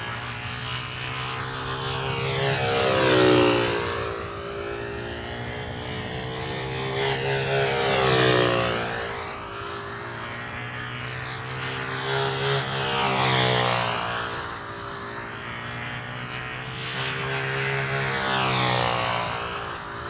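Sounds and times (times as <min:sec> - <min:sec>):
model airplane engine running: 0:00.0 - 0:20.0.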